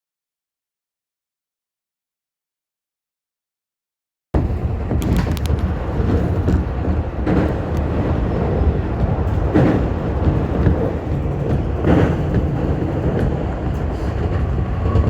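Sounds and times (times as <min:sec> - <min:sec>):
train rumbling over bridge: 0:04.4 - 0:15.0
train wheel clicks: 0:04.9 - 0:15.0.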